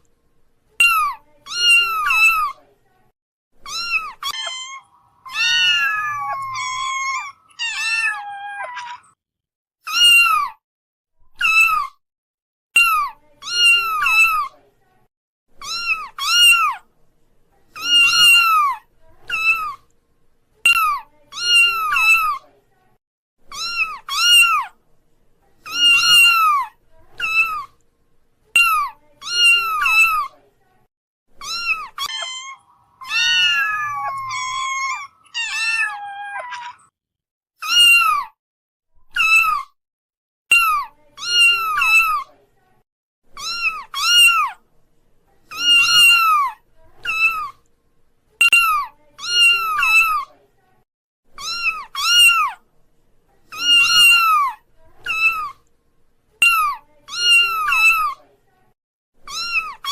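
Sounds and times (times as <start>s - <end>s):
kitten mewing: 3.7s - 9.1s, 31.4s - 36.8s.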